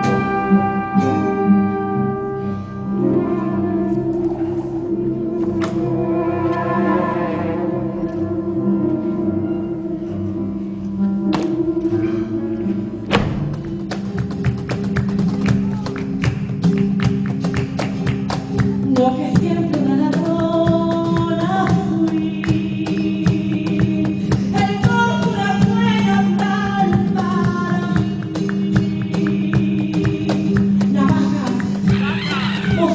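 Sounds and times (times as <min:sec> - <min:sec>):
droning held notes: 0:02.6 - 0:13.9
fast percussive taps: 0:13.7 - 0:25.0.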